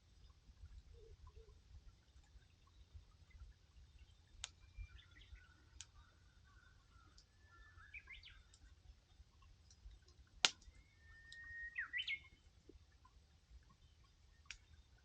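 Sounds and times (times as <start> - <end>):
campfire crackling: 1.9 - 15.0
bird whistling: 7.4 - 8.4, 10.7 - 12.3.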